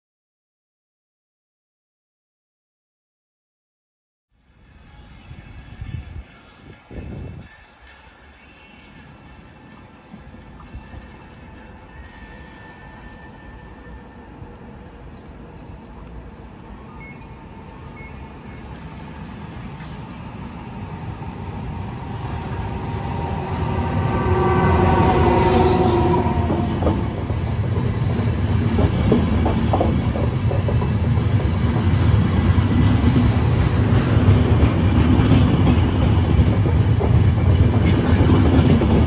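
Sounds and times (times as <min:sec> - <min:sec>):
train coaches rumbling: 0:06.8 - 0:39.0
locomotive whine: 0:10.1 - 0:39.0.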